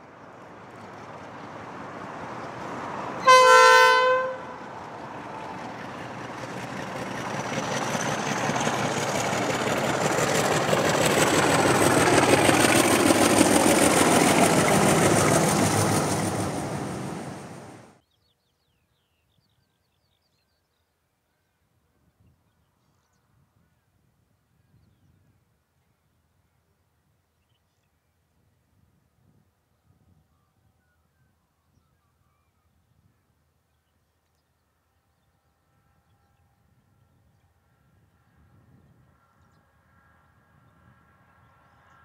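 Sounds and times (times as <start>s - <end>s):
passing train with high whine: 0.0s - 18.0s, 34.6s - 42.0s
train horn blast: 3.2s - 4.7s.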